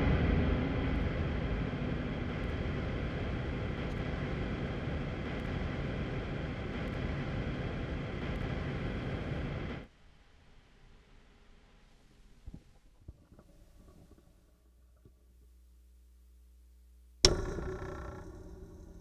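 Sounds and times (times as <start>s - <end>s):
dense ambient noise drone: 0.0s - 9.9s.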